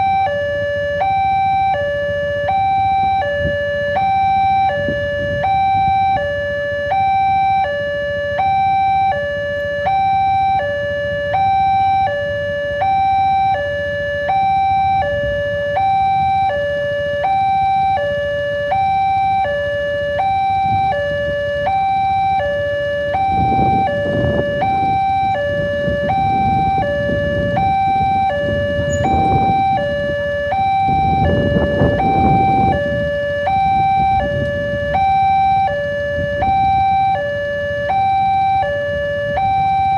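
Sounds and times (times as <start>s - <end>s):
two-tone level crossing alarm: 0.0s - 39.9s.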